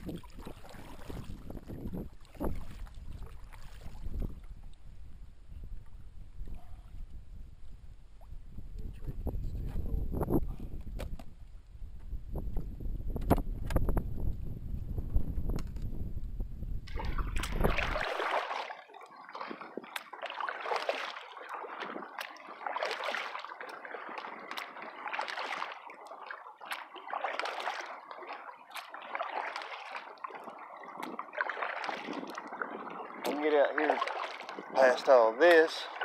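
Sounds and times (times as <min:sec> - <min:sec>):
kayak paddle splashing: 0:00.0 - 0:04.7, 0:16.8 - 0:36.0
wind rumble on microphone: 0:00.0 - 0:18.4, 0:19.2 - 0:20.2, 0:21.5 - 0:22.3, 0:30.3 - 0:36.0.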